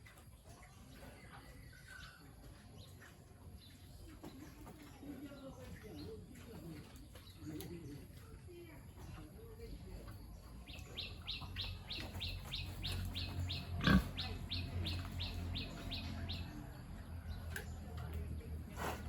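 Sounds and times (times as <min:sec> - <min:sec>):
bird chirping: 0:10.3 - 0:16.6
pigs grunting: 0:12.8 - 0:15.2.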